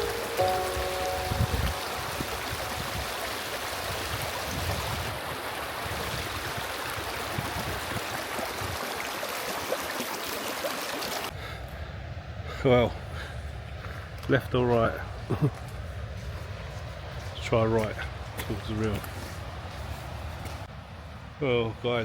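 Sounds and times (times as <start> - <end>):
river water rushing: 0.0 - 11.3.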